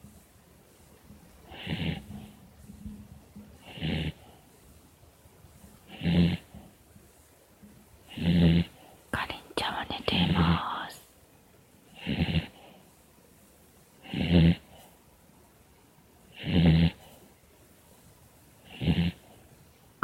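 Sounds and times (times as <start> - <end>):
dog snoring: 1.4 - 2.4, 3.6 - 4.4, 5.8 - 6.8, 8.0 - 9.0, 11.9 - 12.8, 14.0 - 14.9, 16.3 - 17.3, 18.6 - 19.4.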